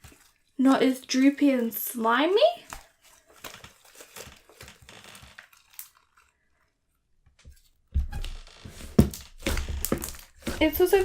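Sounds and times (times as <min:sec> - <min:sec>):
hard slime crackling and tearing: 0:02.7 - 0:06.4, 0:08.9 - 0:11.0.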